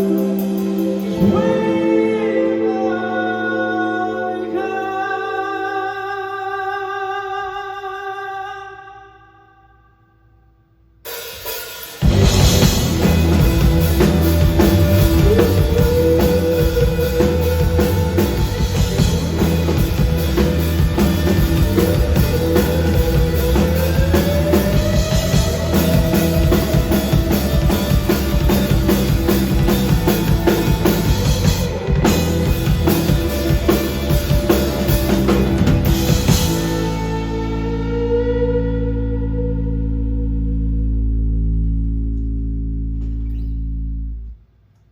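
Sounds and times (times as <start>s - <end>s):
rock band playing: 0.0s - 3.3s, 11.1s - 39.3s
drum kit beat: 11.1s - 37.8s
guitar ringing with echo: 12.0s - 44.3s.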